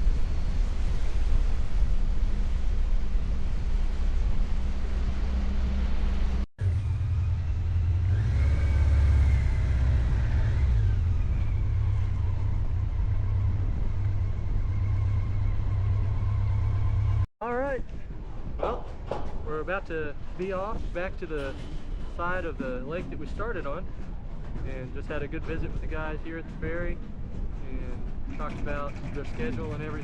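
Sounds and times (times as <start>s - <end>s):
low engine rumble: 0.0s - 30.0s.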